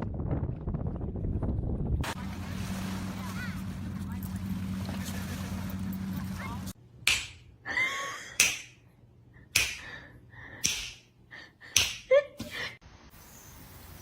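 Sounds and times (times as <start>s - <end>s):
sharp smacks: 7.1s - 7.5s, 8.4s - 8.8s, 9.6s - 9.9s, 10.6s - 11.1s, 11.8s - 12.1s.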